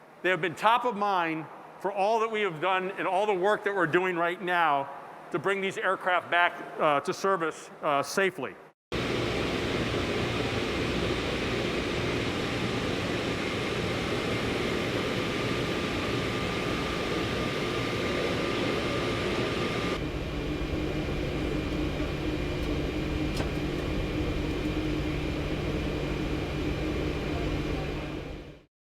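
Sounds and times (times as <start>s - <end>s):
airliner cabin noise: 9.0s - 28.7s.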